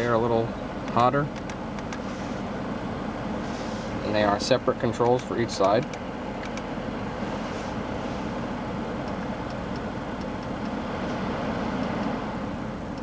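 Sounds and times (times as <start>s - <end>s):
car climate blower rushing: 0.0s - 13.0s.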